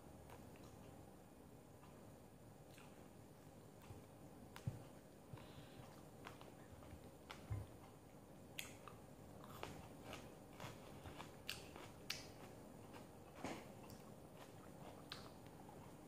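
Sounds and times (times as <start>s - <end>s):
person chewing: 3.7s - 16.0s.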